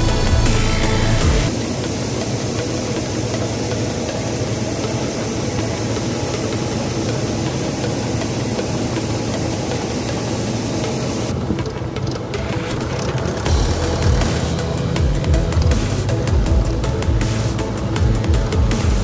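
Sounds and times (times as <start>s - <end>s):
background music: 0.0s - 19.0s
farm machinery diesel engine: 0.0s - 19.0s.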